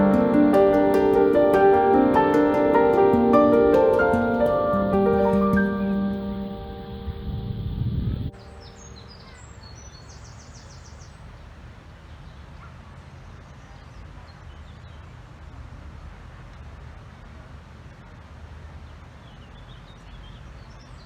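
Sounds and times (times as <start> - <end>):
piano music: 0.0 - 9.2
low background noise: 0.0 - 12.4.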